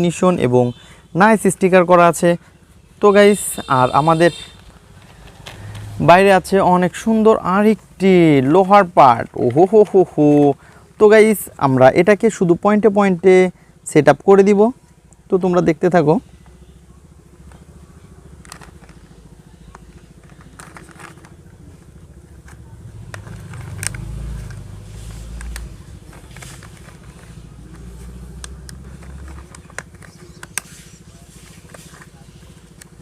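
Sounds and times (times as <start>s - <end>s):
plastic toy parts clicking: 18.4s - 19.0s, 20.2s - 21.4s, 22.4s - 24.6s, 25.4s - 30.8s.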